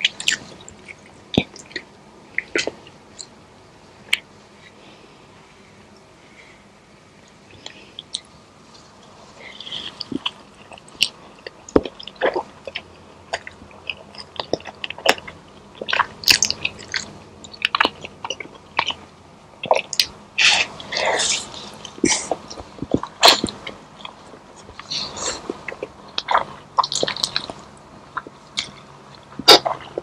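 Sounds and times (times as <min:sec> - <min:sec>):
person chewing food: 0:00.0 - 0:03.3, 0:07.2 - 0:30.0.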